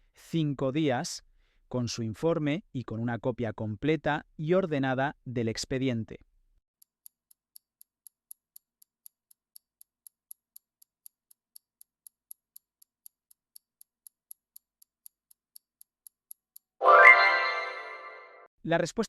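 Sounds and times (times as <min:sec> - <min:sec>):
ringing multi-tone chime: 0:16.8 - 0:18.4.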